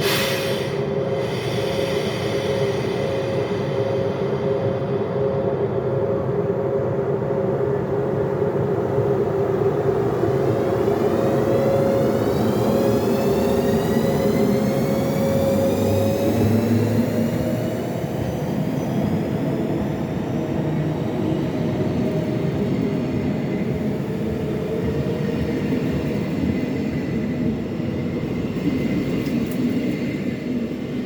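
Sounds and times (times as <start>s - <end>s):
electric locomotive whine: 0.0s - 31.0s.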